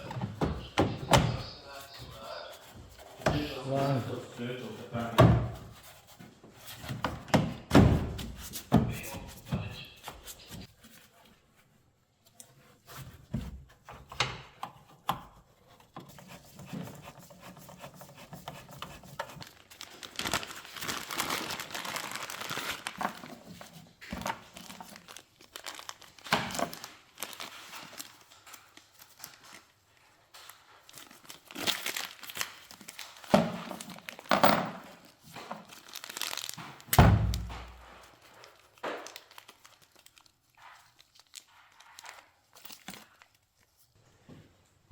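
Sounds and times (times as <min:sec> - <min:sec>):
rubber seal rustling and scraping: 0:00.0 - 0:44.0.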